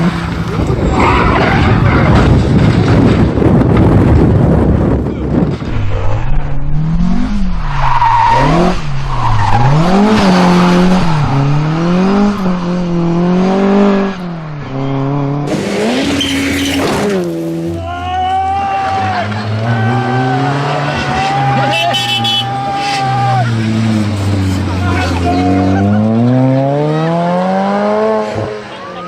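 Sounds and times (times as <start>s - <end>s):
car engine at full throttle: 0.0s - 29.0s.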